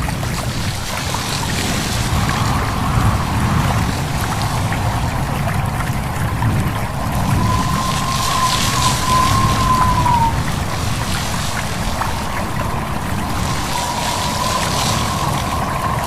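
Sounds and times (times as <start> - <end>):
stream babbling: 0.0 - 16.0
wind rumble: 0.0 - 16.0
thin high tone: 7.0 - 10.4.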